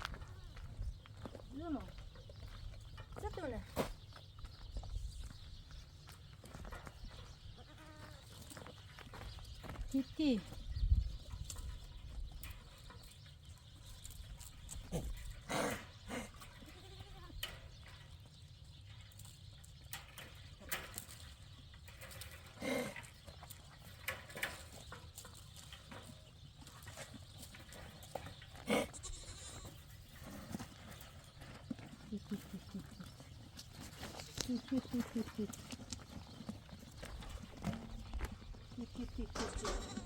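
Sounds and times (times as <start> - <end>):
livestock bleating: 16.6 - 17.4, 28.7 - 29.8.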